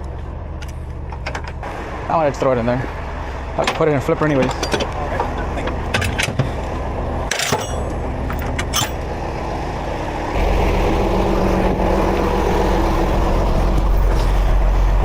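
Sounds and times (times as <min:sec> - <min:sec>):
tow truck engine running: 0:00.0 - 0:15.0
sharp metallic clanks: 0:07.2 - 0:09.0.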